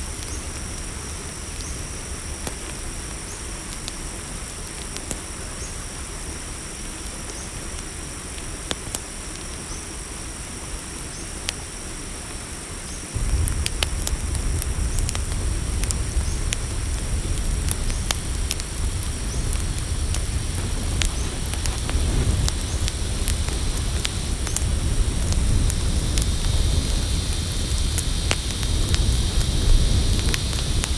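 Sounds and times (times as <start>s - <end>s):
campfire crackling and popping: 0.0s - 11.6s, 13.1s - 30.9s
crickets trilling: 0.0s - 30.9s
low rumble: 13.2s - 30.9s.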